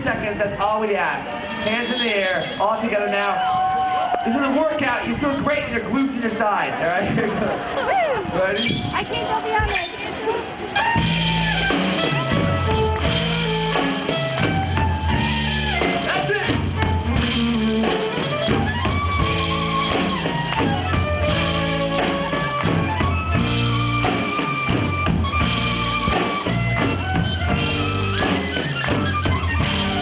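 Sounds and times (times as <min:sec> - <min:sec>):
fiddle melody: 0:00.9 - 0:03.4, 0:08.4 - 0:30.0
low accompaniment: 0:10.4 - 0:30.0.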